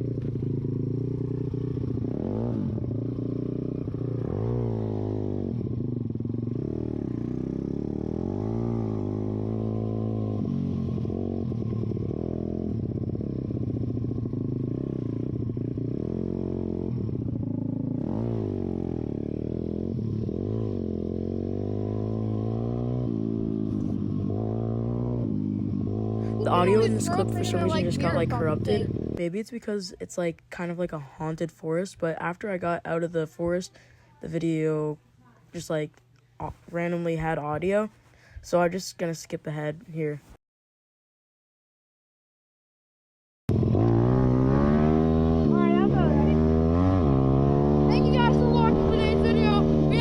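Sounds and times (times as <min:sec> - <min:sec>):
distorted motorbike engine revving: 0:00.0 - 0:29.2, 0:43.5 - 0:50.0.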